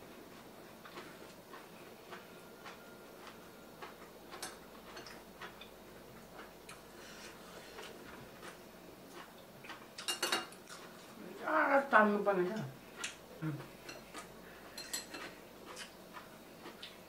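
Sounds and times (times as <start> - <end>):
close chewing mouth clicks: 15.2 - 17.0.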